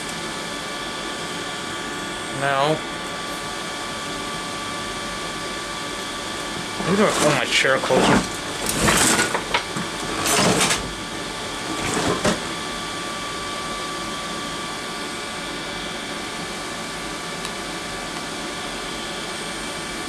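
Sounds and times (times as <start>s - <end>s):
vacuum pump whirring: 0.0s - 17.2s
brief clatter: 6.4s - 12.6s.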